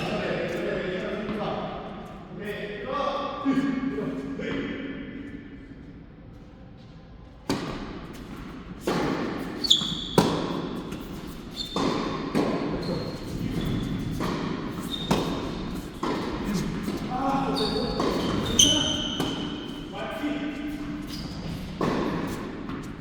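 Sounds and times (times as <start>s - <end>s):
racket striking tennis ball: 7.5s - 19.8s, 21.3s - 23.0s
tennis ball bouncing: 7.5s - 19.8s, 21.4s - 23.0s
shoes squeaking on court: 7.5s - 23.0s.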